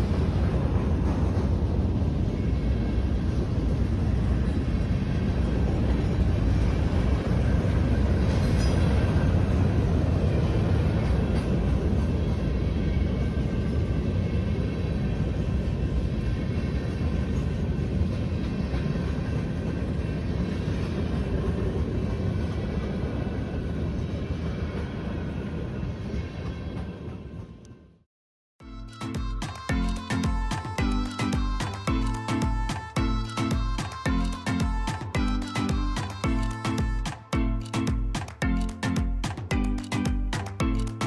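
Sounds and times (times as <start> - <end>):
freight train wheels rumbling: 0.0 - 27.7.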